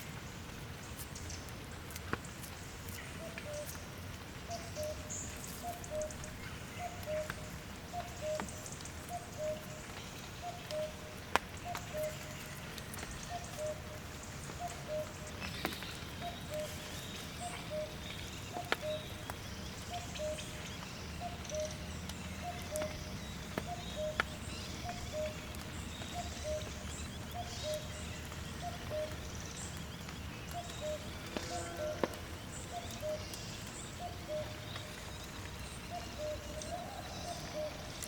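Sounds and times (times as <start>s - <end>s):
two-note animal call: 31.4s - 32.2s.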